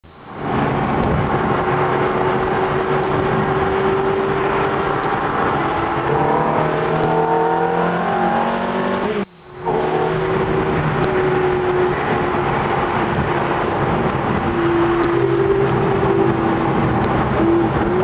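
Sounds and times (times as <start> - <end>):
road noise: 0.0 - 18.0
car engine revving: 0.4 - 18.0.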